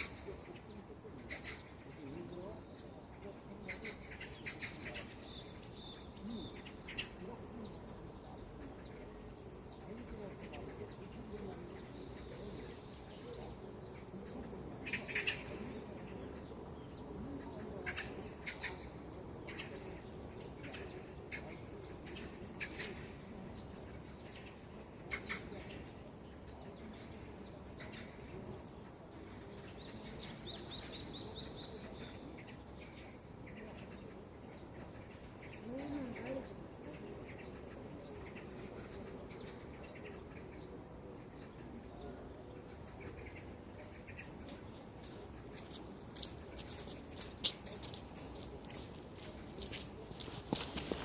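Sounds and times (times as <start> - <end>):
birds chirping: 0.0 - 51.0
faint background hiss: 0.0 - 51.0.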